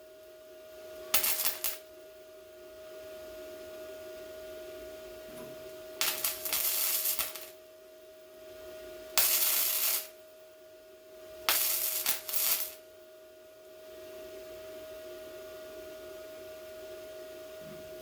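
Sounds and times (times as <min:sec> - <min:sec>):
welder crackling and sizzling: 0:01.1 - 0:01.9, 0:06.0 - 0:07.6, 0:09.1 - 0:10.3, 0:11.4 - 0:12.8.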